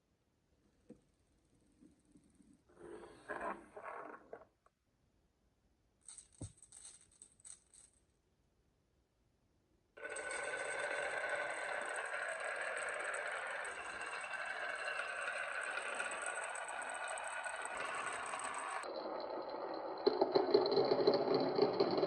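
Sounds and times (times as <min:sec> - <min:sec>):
marbles rattling down track: 0:10.0 - 0:22.0.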